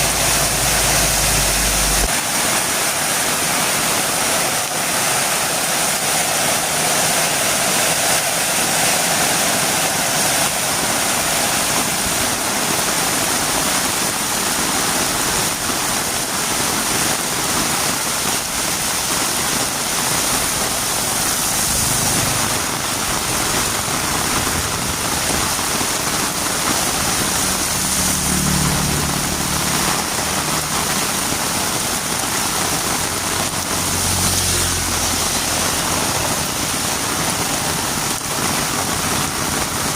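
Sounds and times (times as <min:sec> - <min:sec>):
low motor hum: 0:00.0 - 0:02.1
heavy rain: 0:00.0 - 0:39.9.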